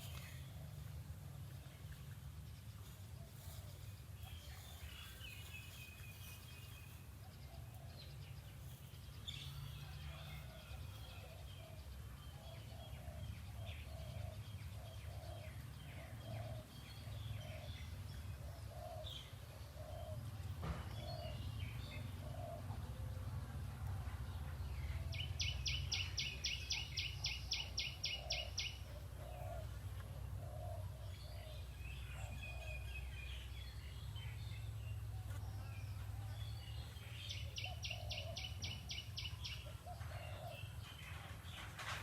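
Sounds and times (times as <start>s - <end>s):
birds chirping: 0.0s - 10.2s, 24.2s - 42.0s
low ambient rumble: 11.3s - 42.0s.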